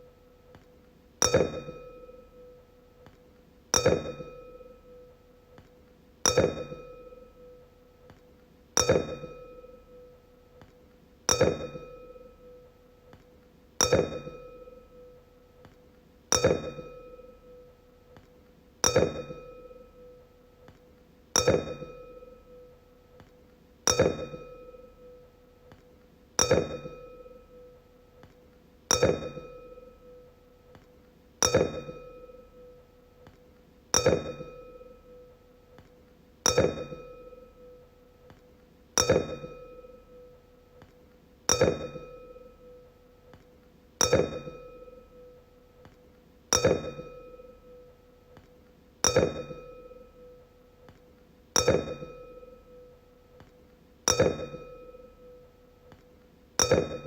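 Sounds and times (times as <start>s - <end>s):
wine glass ringing when struck: 1.2s - 2.5s, 6.3s - 7.6s, 8.8s - 10.0s, 11.3s - 12.6s, 16.3s - 17.6s, 18.8s - 19.9s, 21.4s - 22.6s, 31.4s - 32.7s, 34.0s - 35.2s, 36.5s - 37.8s, 39.0s - 40.3s, 41.5s - 42.8s, 44.0s - 45.4s, 46.5s - 47.9s, 49.0s - 50.4s, 51.6s - 52.9s, 54.1s - 55.4s, 56.6s - 57.0s.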